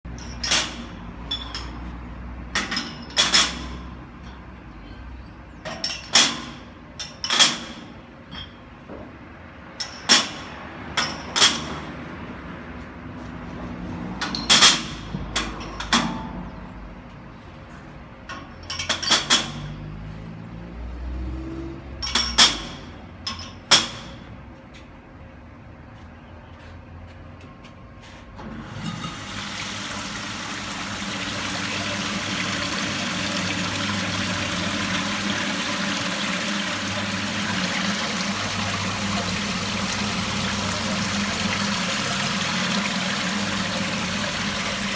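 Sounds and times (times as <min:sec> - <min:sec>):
glass bottles clinking: 0:00.1 - 0:01.9, 0:02.6 - 0:03.8, 0:05.7 - 0:06.3, 0:08.3 - 0:08.7, 0:22.0 - 0:23.7.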